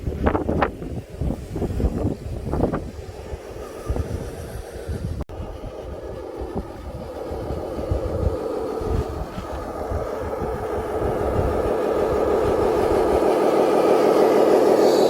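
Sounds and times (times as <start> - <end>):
electric motor and gears whining: 0.0 - 15.0.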